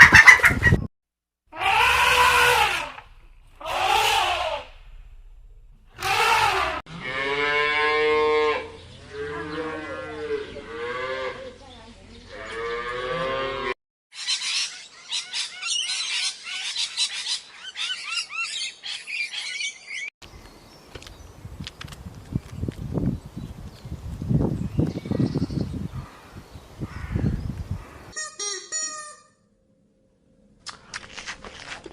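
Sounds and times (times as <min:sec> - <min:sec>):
cow mooing: 0:01.6 - 0:04.8, 0:06.0 - 0:11.5, 0:12.3 - 0:13.8.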